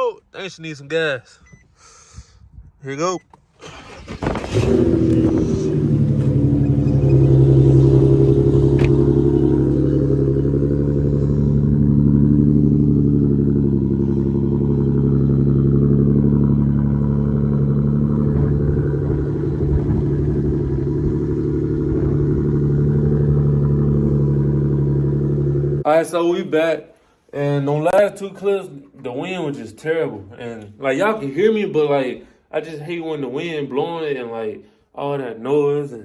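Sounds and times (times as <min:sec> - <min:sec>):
car engine idling: 0:03.6 - 0:25.9.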